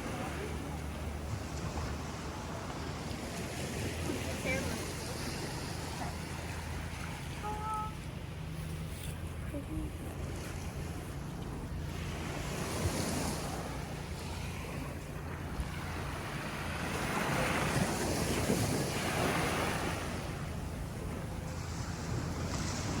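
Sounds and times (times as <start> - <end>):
ocean surf washing onto beach: 0.0 - 8.6, 9.3 - 23.0
wind rumbling on microphone: 0.0 - 23.0.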